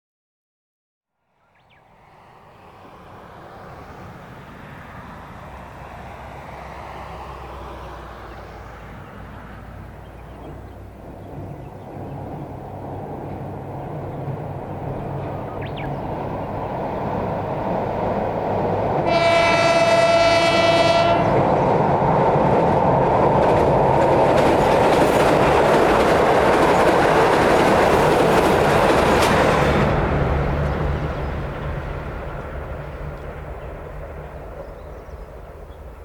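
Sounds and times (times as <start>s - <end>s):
wheel and rail noise: 1.8s - 36.0s
diesel train engine: 2.0s - 36.0s
train horn: 19.0s - 21.6s.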